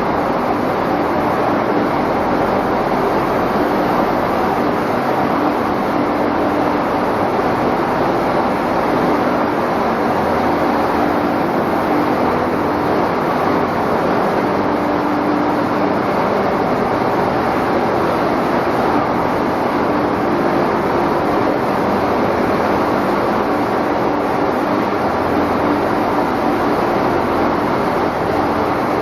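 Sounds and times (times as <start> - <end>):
machinery running: 0.0 - 18.5
faint hum: 0.0 - 24.5.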